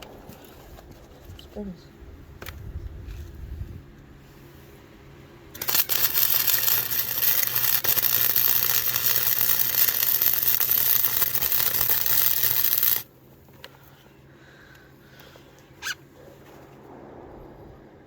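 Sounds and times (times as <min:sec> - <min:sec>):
welder arc crackling: 0:05.5 - 0:13.1.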